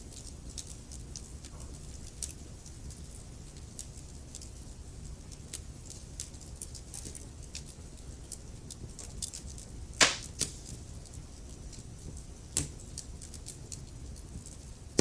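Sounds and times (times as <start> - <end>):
wood fire crackling and popping: 10.0 - 10.9.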